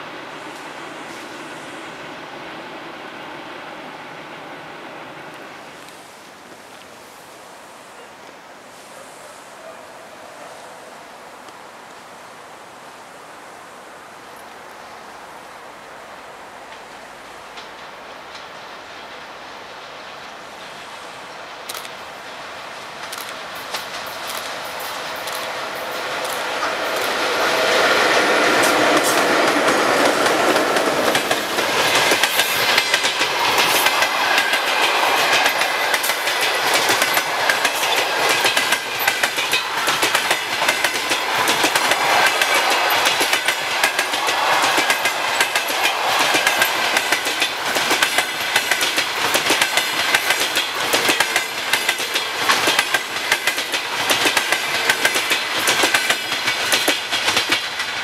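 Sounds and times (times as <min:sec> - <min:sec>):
train wheels clattering over rail joints: 0:22.9 - 0:58.0.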